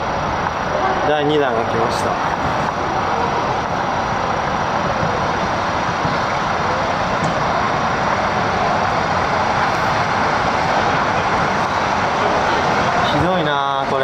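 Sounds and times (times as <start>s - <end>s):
water surging loudly: 0.0s - 14.0s.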